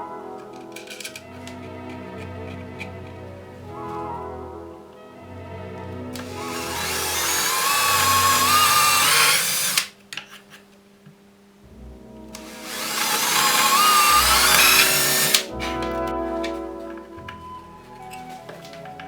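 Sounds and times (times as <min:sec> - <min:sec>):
stepper motors whining: 0:06.2 - 0:09.9, 0:12.4 - 0:15.5.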